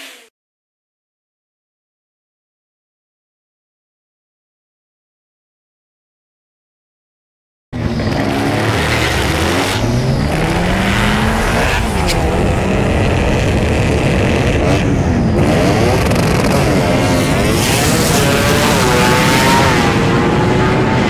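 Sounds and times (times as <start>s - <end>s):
car engine at full throttle: 7.8s - 21.0s
wind and road noise: 7.8s - 21.0s.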